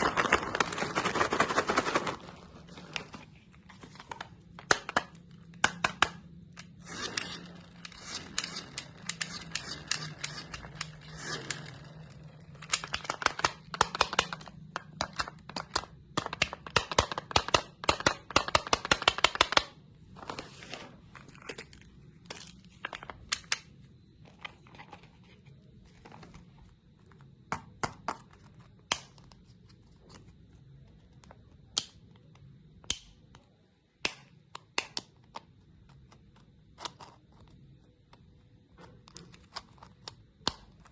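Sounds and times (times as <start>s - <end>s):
hard candy crunching: 0.0s - 3.2s.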